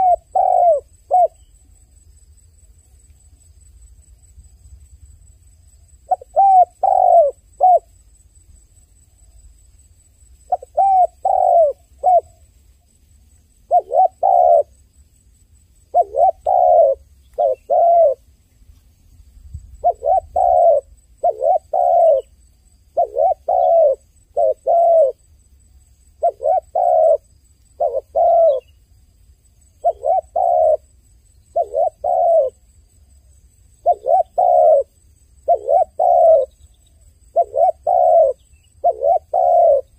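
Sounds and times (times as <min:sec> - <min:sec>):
dove cooing: 0:00.0 - 0:01.5, 0:06.1 - 0:07.9, 0:10.5 - 0:12.4, 0:13.6 - 0:14.8, 0:15.9 - 0:18.3, 0:19.8 - 0:25.2, 0:26.2 - 0:28.7, 0:29.8 - 0:30.8, 0:31.5 - 0:32.6, 0:33.8 - 0:39.9.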